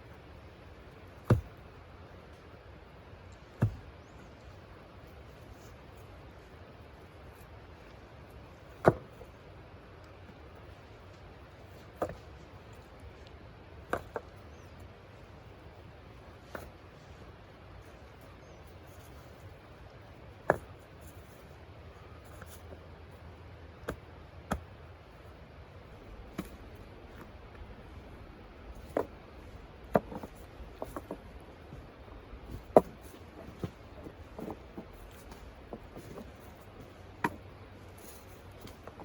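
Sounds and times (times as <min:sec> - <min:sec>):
faint low hum: 0:00.0 - 0:39.0.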